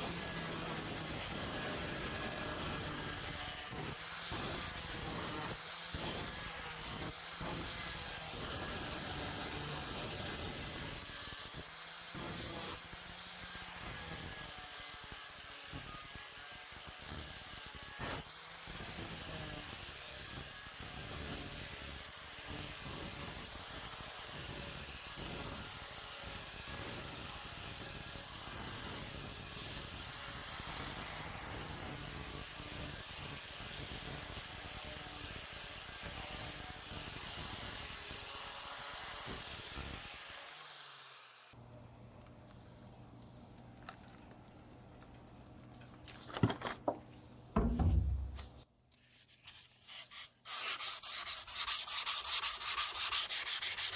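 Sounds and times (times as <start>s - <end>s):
power tool whining on metal: 0.0s - 23.4s.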